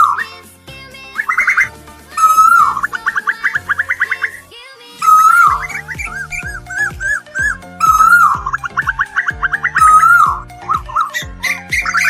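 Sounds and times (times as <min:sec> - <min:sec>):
koel bird calling: 0:00.0 - 0:00.4, 0:01.2 - 0:12.0
background music low notes: 0:00.0 - 0:12.0.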